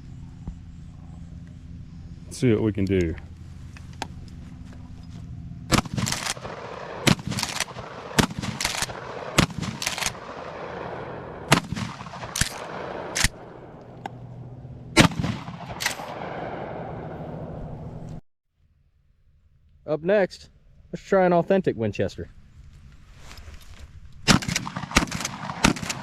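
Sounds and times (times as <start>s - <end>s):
shotgun shots: 5.7s - 13.8s, 14.9s - 17.4s, 24.2s - 26.0s.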